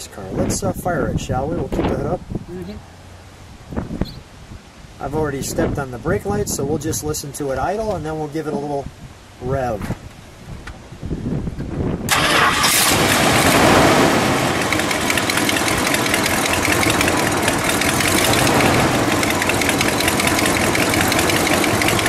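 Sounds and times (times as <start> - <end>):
car engine starting and idling: 12.1 - 22.0.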